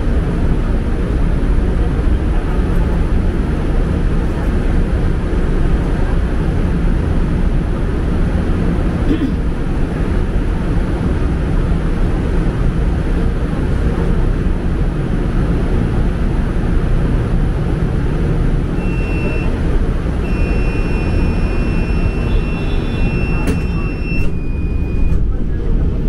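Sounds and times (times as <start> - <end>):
train wheels and motors rumbling: 0.0 - 26.0
thin high whine: 20.2 - 25.3.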